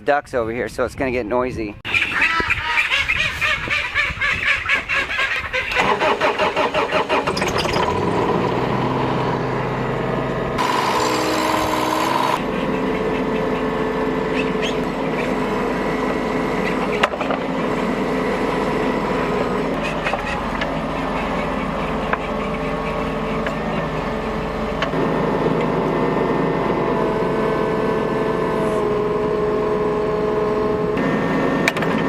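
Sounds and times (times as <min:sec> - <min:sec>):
ducks quacking: 0:01.9 - 0:05.8, 0:12.3 - 0:15.9, 0:19.7 - 0:24.9
mini excavator engine running: 0:05.7 - 0:32.0.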